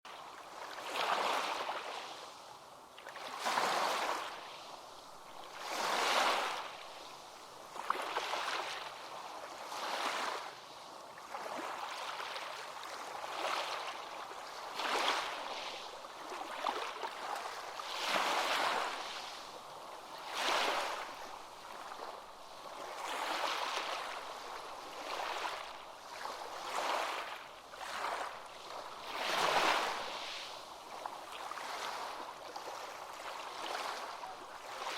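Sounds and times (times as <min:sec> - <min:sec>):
ocean waves breaking: 0:14.6 - 0:34.9.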